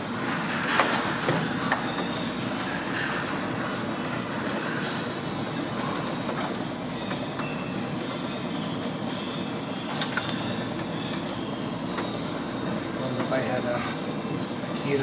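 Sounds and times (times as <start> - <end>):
hand ratchet clicking: 12.2 - 12.5, 13.9 - 14.6.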